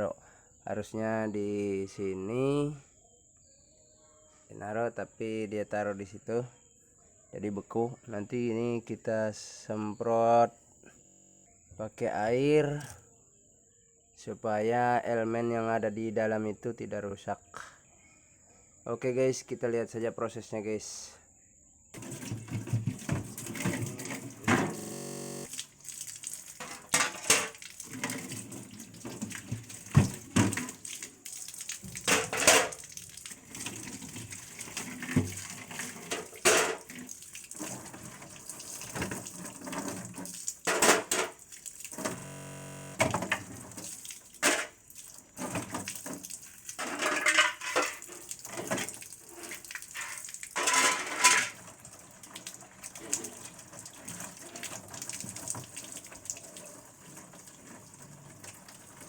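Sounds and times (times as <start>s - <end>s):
ice knocking and clattering: 22.0s - 24.4s, 26.4s - 30.8s, 31.8s - 32.8s
water spraying onto ice: 22.0s - 42.4s, 43.5s - 46.8s.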